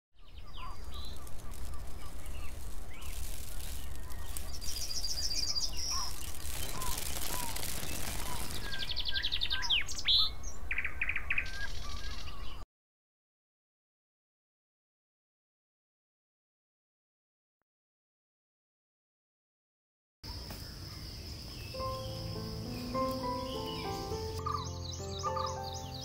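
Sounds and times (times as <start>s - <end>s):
birds chirping and whistling: 0.2s - 12.6s, 21.7s - 26.0s.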